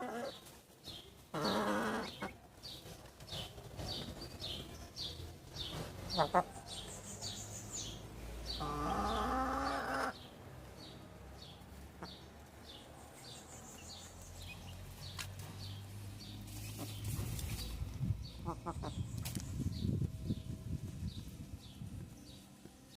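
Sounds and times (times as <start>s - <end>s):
chicks peeping: 0.0s - 22.7s
chicken calling: 1.3s - 2.4s, 6.1s - 6.7s, 8.5s - 10.2s.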